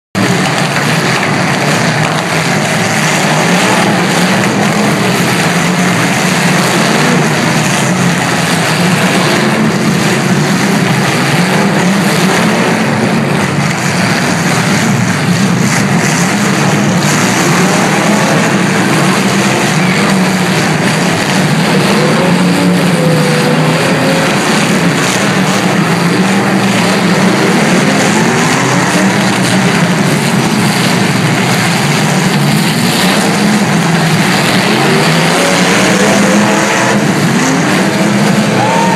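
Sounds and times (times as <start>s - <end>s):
car engines revving: 0.0s - 38.9s.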